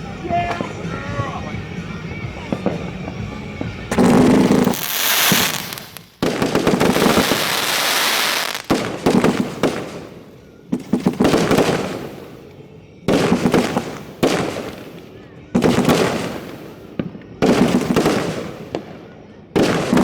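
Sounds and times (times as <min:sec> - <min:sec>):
fireworks crackling: 0:00.0 - 0:20.0
sharp firework bangs: 0:02.5 - 0:12.4, 0:13.1 - 0:15.0, 0:15.6 - 0:18.9, 0:19.6 - 0:20.0
firework shells bursting: 0:03.9 - 0:12.4.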